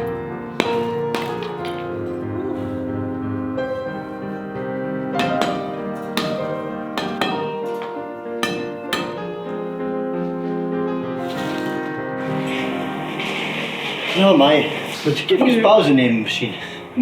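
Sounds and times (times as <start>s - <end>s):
sharp knocks: 0.0s - 10.2s
sustained keyboard notes: 0.0s - 17.0s.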